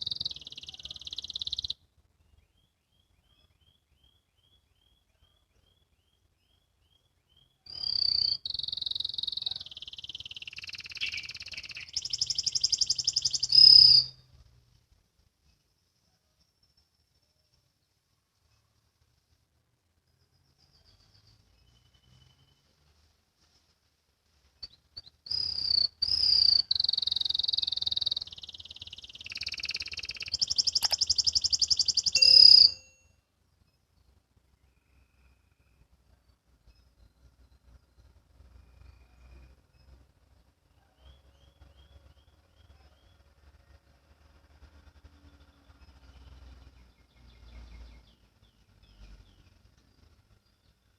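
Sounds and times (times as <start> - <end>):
canary singing: 0.0 - 1.8, 2.5 - 14.2, 24.6 - 33.0.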